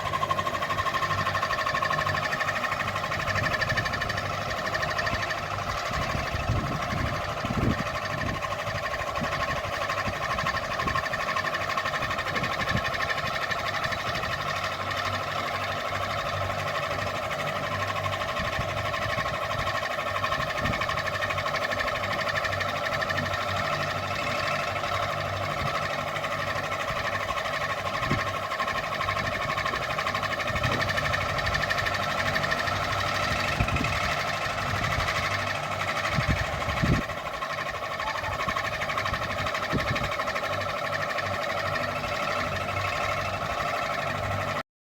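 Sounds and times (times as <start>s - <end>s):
ceiling fan motor humming: 0.0s - 44.6s.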